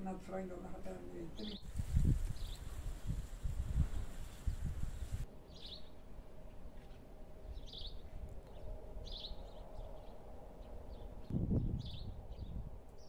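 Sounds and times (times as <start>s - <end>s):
small bird chirping: 1.4s - 2.8s, 4.2s - 6.0s.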